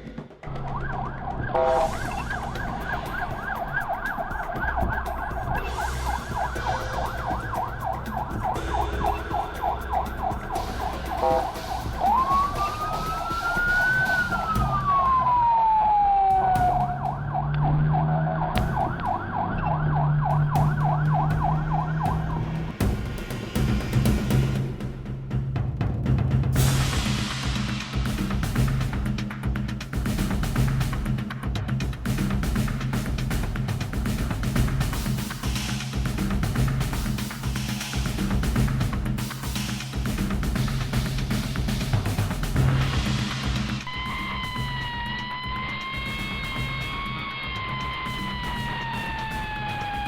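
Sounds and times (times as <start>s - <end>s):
emergency siren yelping and wailing: 0.5s - 22.7s, 43.9s - 50.0s.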